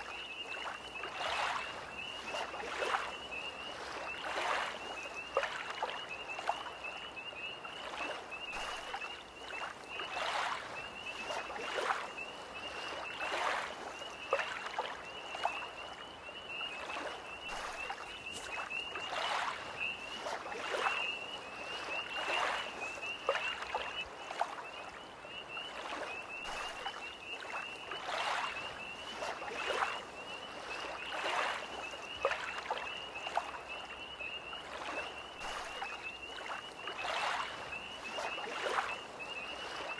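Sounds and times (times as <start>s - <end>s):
lake waves lapping: 0.0s - 6.8s, 7.8s - 39.9s
tree frog chorus trilling: 16.3s - 24.0s.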